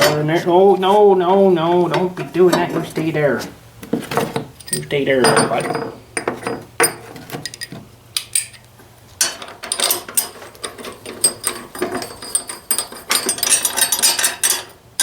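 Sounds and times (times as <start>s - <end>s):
hand tools clicking on metal: 4.4s - 15.0s.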